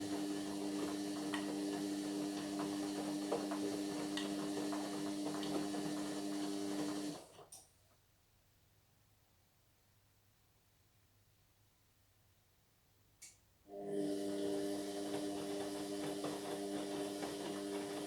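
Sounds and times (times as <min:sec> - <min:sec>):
washing machine motor hum: 0:00.0 - 0:07.4, 0:13.7 - 0:18.0.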